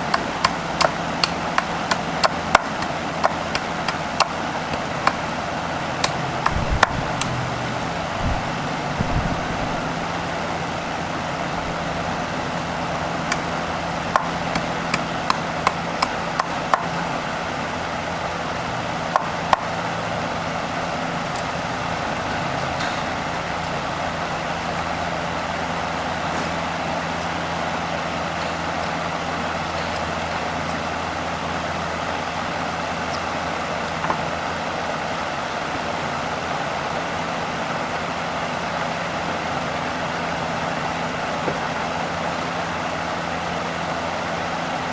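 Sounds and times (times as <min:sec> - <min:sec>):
machine hum: 0:00.0 - 0:44.9
sharp knocks: 0:06.0 - 0:07.4.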